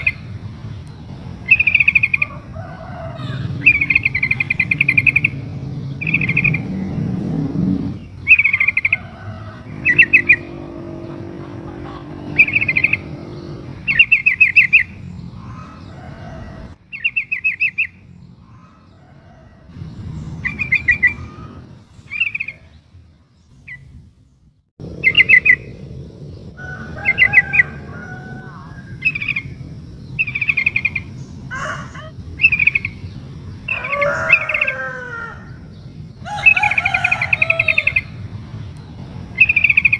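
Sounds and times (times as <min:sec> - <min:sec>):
lower wavering bird calls: 0:00.0 - 0:24.0, 0:24.8 - 0:39.9
bulbul trilled calls: 0:01.4 - 0:02.5, 0:03.2 - 0:07.0, 0:07.8 - 0:16.0, 0:20.3 - 0:22.8, 0:24.9 - 0:25.8, 0:26.8 - 0:34.8, 0:39.3 - 0:39.9.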